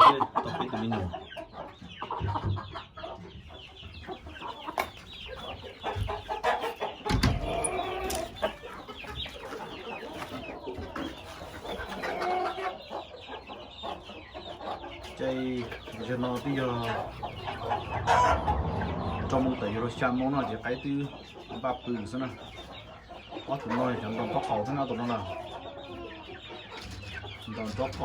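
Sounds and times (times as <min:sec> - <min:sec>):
chickens clucking and chirping: 0:00.0 - 0:28.0
low thumps: 0:15.8 - 0:21.4.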